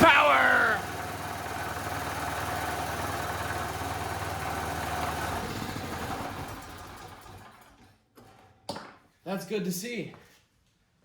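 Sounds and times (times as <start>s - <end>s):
portable generator engine running: 0.0s - 7.8s.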